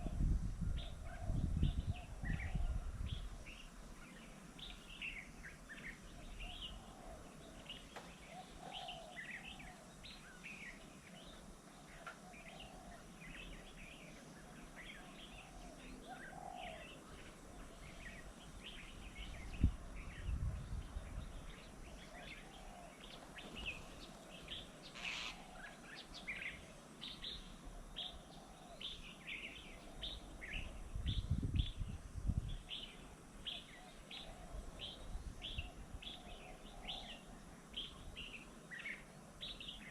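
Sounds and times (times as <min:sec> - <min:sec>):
bird chirps and calls: 0:00.8 - 0:31.9.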